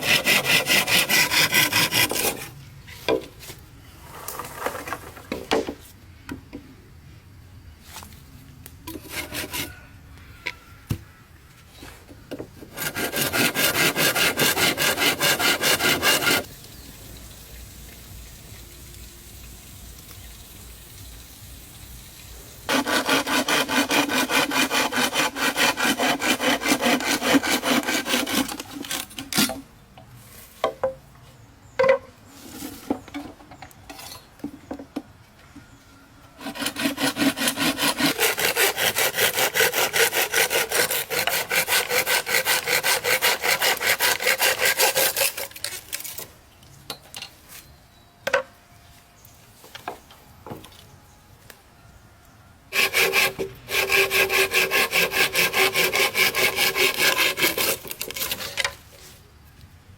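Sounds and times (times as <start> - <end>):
hand saw cutting wood: 0.0 - 3.2, 8.9 - 9.8, 12.6 - 16.6, 22.7 - 29.6, 36.4 - 46.3, 52.7 - 58.9.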